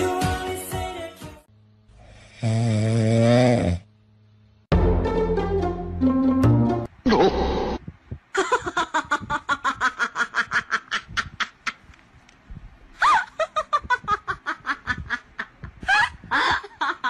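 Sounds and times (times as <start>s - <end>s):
person laughing heartily: 8.3s - 11.9s, 13.0s - 17.0s.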